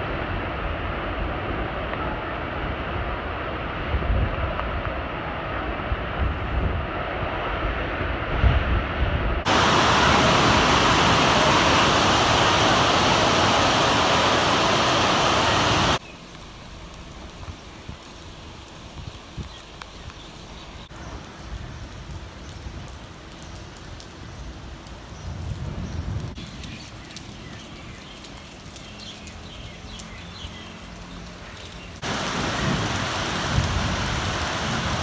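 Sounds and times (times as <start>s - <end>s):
rushing hiss of driving rain: 0.0s - 8.5s, 9.2s - 35.0s
gusty wind buffeting microphone: 0.0s - 16.0s, 25.2s - 26.8s.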